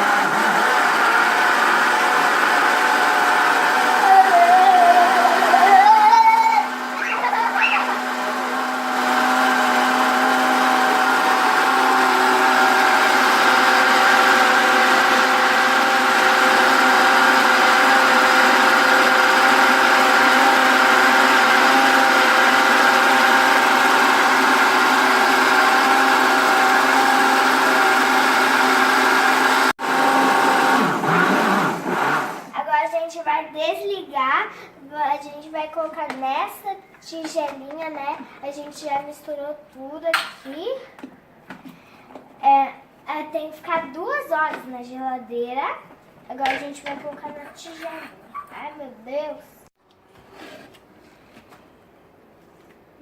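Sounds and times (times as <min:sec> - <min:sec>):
electric blender running: 0:00.0 - 0:32.5.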